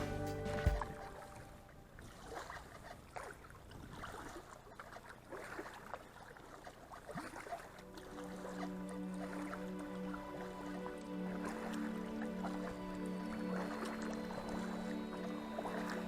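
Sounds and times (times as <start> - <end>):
paddle splashing water: 0.0 - 16.0
soft wash of moving water: 0.0 - 16.0.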